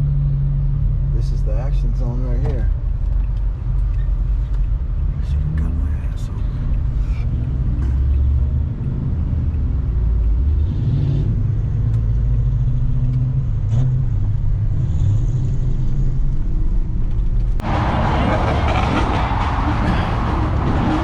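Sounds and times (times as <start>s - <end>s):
car engines rumbling: 0.0s - 21.0s
loud rushing noise: 17.6s - 21.0s.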